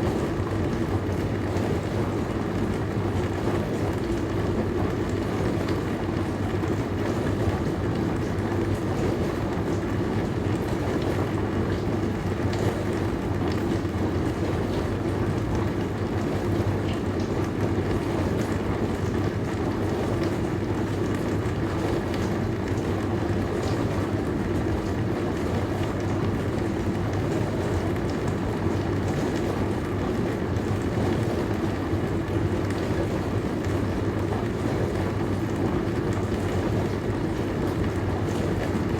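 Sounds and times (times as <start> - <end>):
dishwasher motor hum: 0.0 - 38.9.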